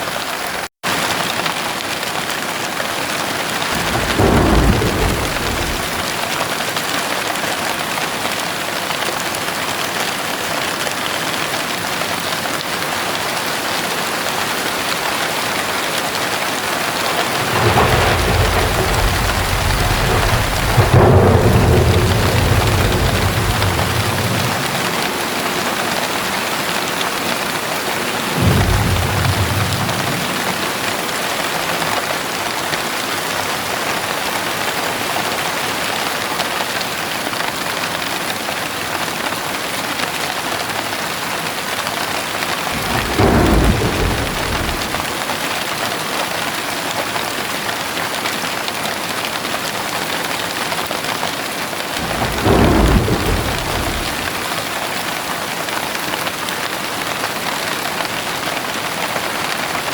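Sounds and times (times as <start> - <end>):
heavy rain: 0.0 - 59.9
low thunder rumbles: 3.6 - 6.6, 16.6 - 31.8, 42.6 - 45.3, 52.0 - 54.8.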